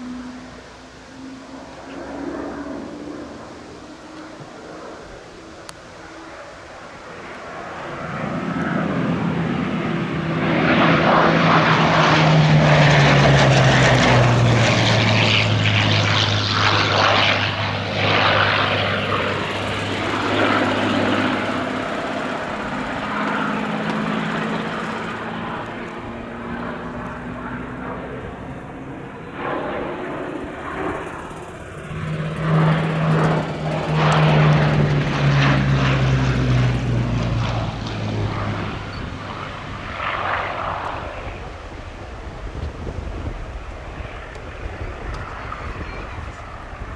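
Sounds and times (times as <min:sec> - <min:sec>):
propeller plane engine flying past: 0:00.0 - 0:46.9.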